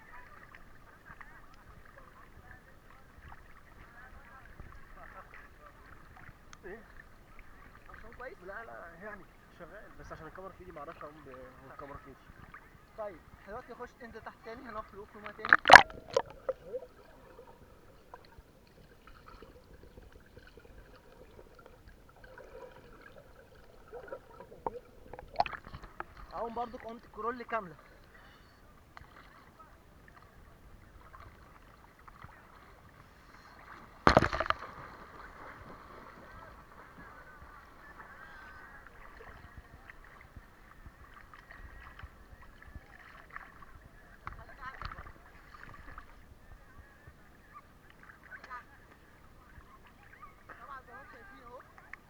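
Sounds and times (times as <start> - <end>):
underwater water sloshing: 0.0 - 52.0
water splashes: 9.8 - 46.2
swimming stroke splashes: 15.3 - 16.9, 33.4 - 40.2.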